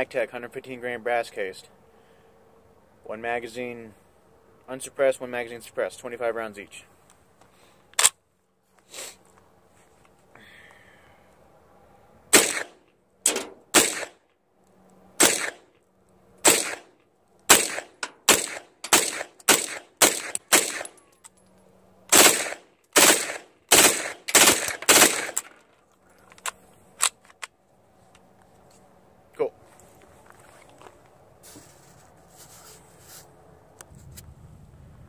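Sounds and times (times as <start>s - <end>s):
pistol gunshots: 12.3s - 14.2s, 15.2s - 15.7s, 16.4s - 16.9s, 17.5s - 21.0s, 22.1s - 25.5s.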